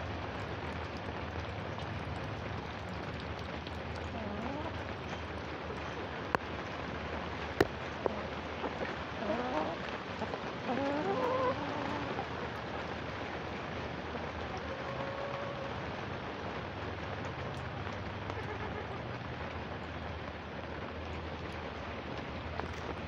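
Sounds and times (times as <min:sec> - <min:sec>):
steady rain: 0:00.0 - 0:23.0
chickens calling: 0:04.1 - 0:05.1, 0:09.1 - 0:12.4, 0:14.4 - 0:16.0, 0:18.3 - 0:19.2.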